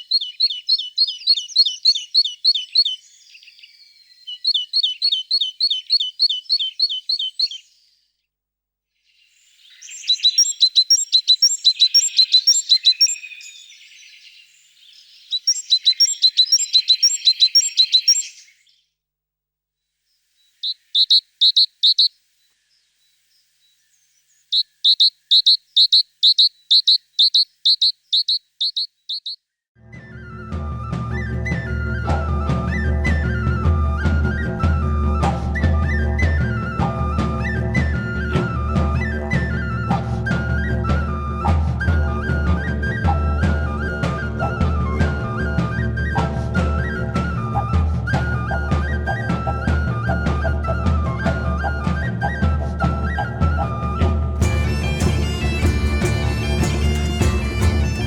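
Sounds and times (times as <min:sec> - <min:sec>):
bird chirping: 0:00.0 - 0:08.2, 0:09.0 - 0:18.9, 0:20.1 - 0:29.5.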